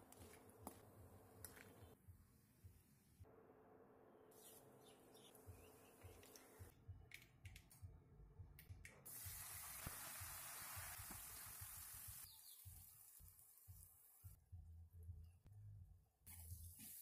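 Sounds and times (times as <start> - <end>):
paste sizzling in hot oil: 9.1 - 13.9.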